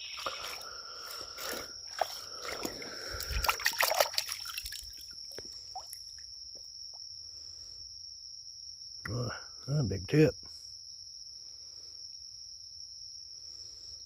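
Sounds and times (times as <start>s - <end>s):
creek water splashing and trickling: 0.0s - 6.3s.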